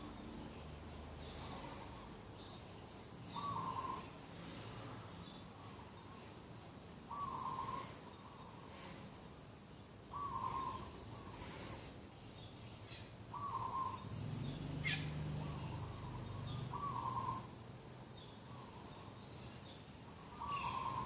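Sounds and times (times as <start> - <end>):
small birds chirping: 0.0 - 21.0
dove cooing: 3.4 - 4.1, 7.1 - 8.4, 10.1 - 11.7, 13.3 - 14.1, 14.8 - 17.5, 20.2 - 21.0.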